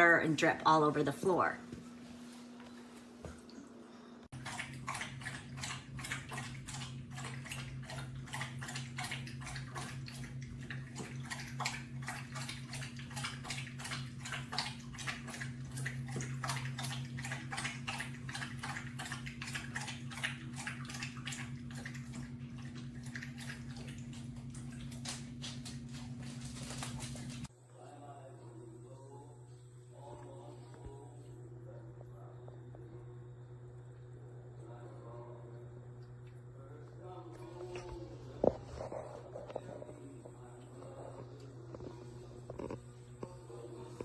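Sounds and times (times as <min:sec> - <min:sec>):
steady low hum: 0:00.0 - 0:44.0
dog lapping water: 0:04.3 - 0:27.5, 0:37.4 - 0:44.0.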